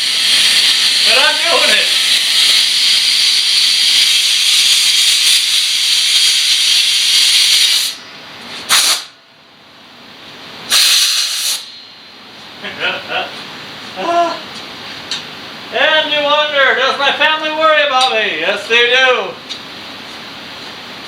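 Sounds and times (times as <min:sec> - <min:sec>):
pressurised jet hissing: 0:00.0 - 0:08.0, 0:08.7 - 0:09.1, 0:10.7 - 0:11.8.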